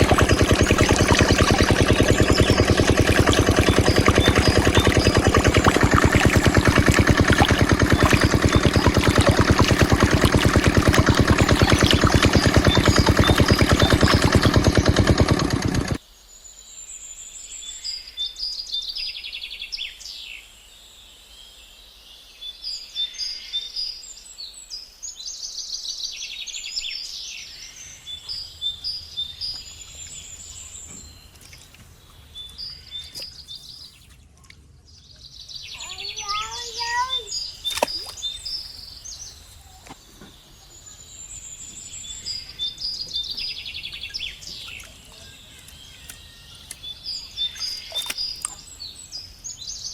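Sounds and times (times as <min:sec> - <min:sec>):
diesel pump engine running: 0:00.0 - 0:16.0
birds chirping and trilling: 0:00.0 - 0:49.9.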